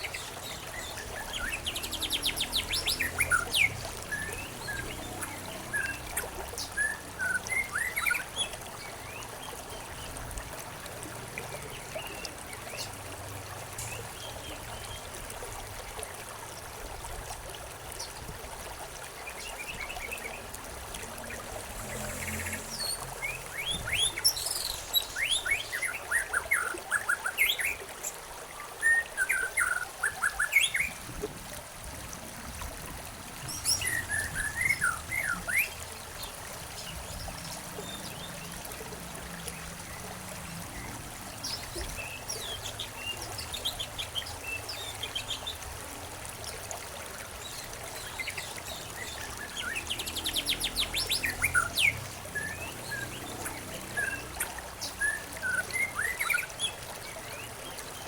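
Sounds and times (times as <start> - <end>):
small birds chirping: 0.0 - 9.3
trickle of running water: 0.0 - 58.0.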